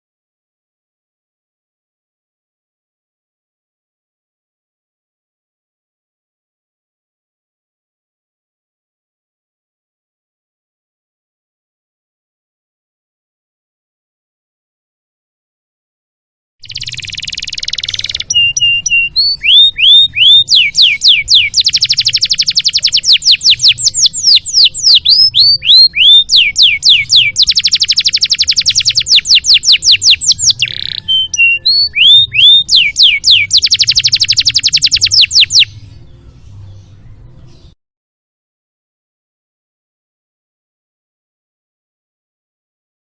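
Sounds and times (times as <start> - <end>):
canary singing: 16.6 - 37.8.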